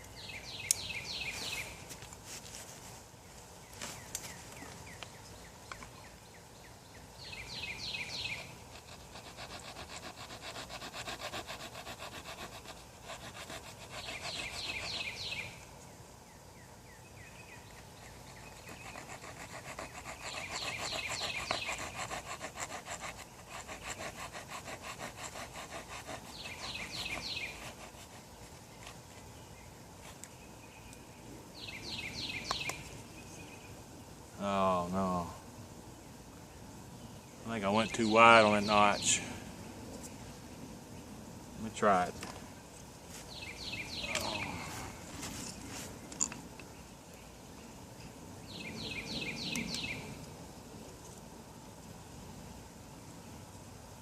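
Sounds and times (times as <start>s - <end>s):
wood rubbing on wood: 8.7s - 15.0s, 18.0s - 29.2s.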